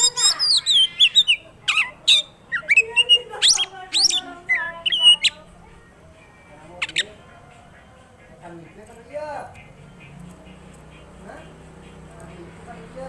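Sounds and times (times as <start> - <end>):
bird singing whistled notes: 0.0 - 5.5, 6.7 - 7.2
harsh squawky bird calls: 0.0 - 5.6, 6.6 - 13.0.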